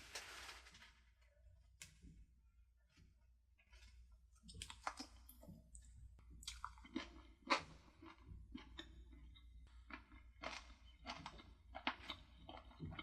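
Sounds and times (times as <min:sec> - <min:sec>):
person chewing food: 0:03.6 - 0:13.0.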